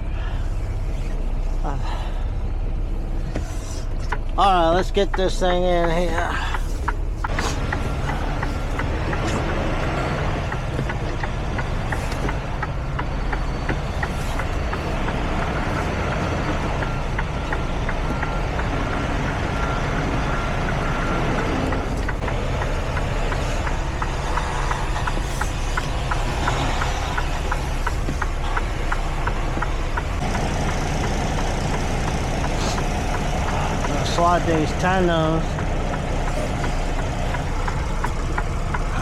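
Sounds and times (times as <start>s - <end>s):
diesel truck engine running: 0.0s - 39.0s
reversing alarm beeping: 7.5s - 38.8s.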